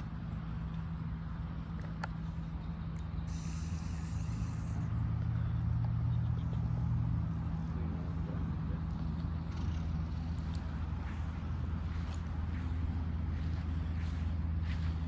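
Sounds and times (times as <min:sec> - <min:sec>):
low engine hum: 0:00.0 - 0:15.0
brief hiss: 0:03.3 - 0:04.8.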